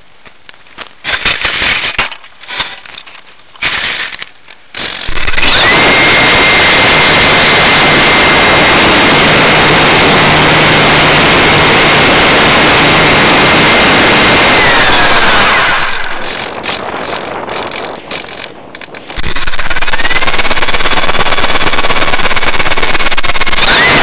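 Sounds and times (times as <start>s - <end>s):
electric motors and propellers roaring: 4.8s - 24.0s
high motor whine: 5.1s - 17.4s, 19.1s - 24.0s.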